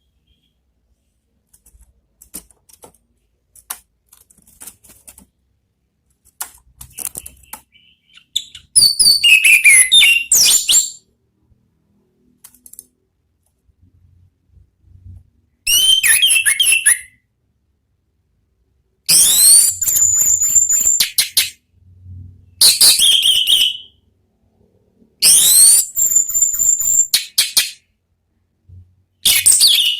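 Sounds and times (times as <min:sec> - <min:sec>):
thrush whistled song: 0:07.3 - 0:11.0, 0:15.7 - 0:17.2, 0:19.1 - 0:21.2, 0:22.6 - 0:24.0, 0:25.2 - 0:27.4, 0:29.2 - 0:29.9.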